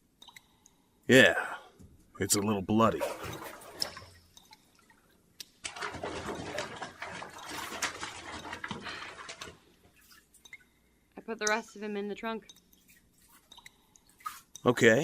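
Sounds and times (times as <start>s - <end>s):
water sloshing in a bathtub: 2.4s - 11.0s, 12.4s - 15.0s.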